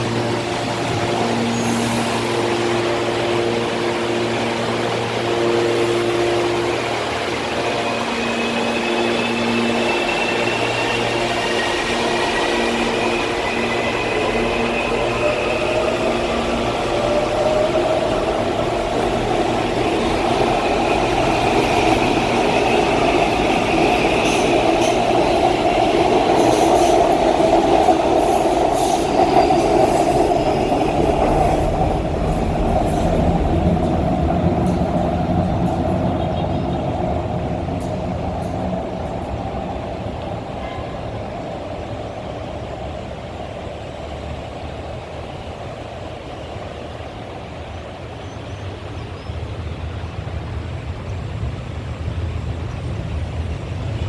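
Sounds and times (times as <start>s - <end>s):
train running rumble: 0.0s - 54.0s
rail clicks: 7.8s - 42.4s.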